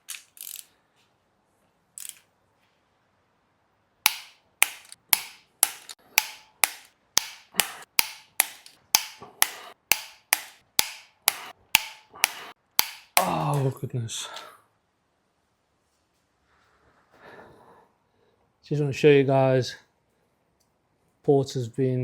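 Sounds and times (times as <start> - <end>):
sharp taps or knocks: 4.1 - 13.7.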